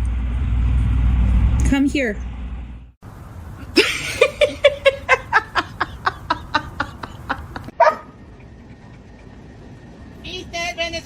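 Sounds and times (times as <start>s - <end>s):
person laughing: 3.6s - 7.8s.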